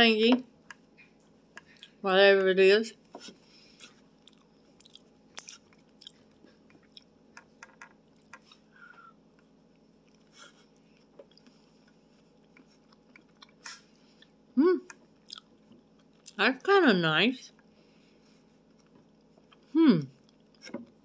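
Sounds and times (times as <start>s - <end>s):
person chewing: 1.0s - 2.0s, 3.4s - 8.9s, 9.8s - 16.4s, 18.4s - 21.0s.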